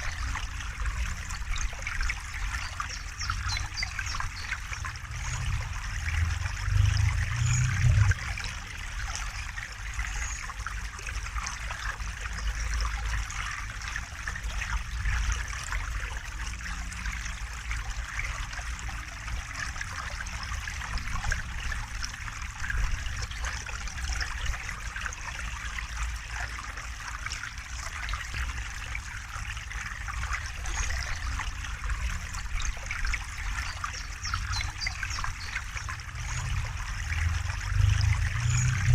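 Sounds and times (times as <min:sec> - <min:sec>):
stream flowing and trickling: 0:00.0 - 0:38.9
low rumble: 0:05.0 - 0:08.6, 0:36.0 - 0:38.9.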